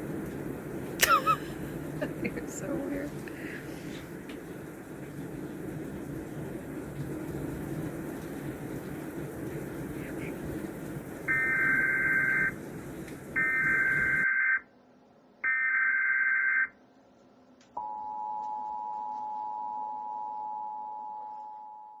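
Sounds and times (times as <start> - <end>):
two-tone attention signal: 11.3 - 12.5, 13.4 - 14.6.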